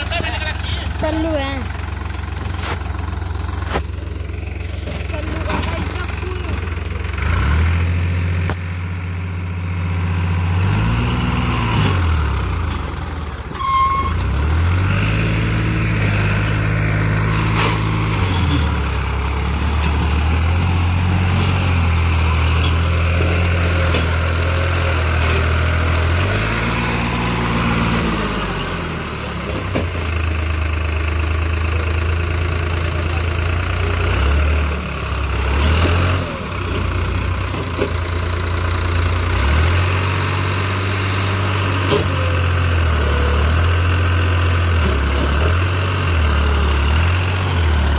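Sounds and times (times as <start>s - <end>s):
tractor engine revving: 0.0s - 47.9s.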